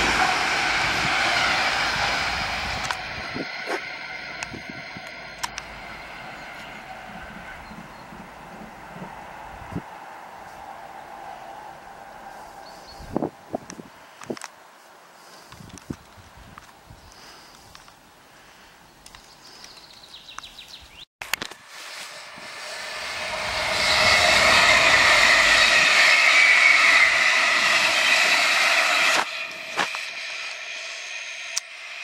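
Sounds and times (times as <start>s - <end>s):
electric train passing at speed: 0.0s - 14.5s, 21.5s - 32.0s
steady train noise: 0.0s - 18.6s, 21.4s - 32.0s.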